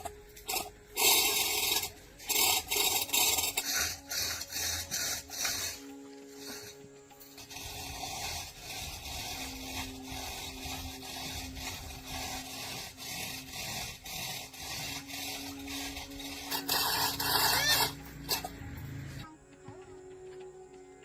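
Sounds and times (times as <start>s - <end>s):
hand scraping strokes: 0.0s - 19.3s.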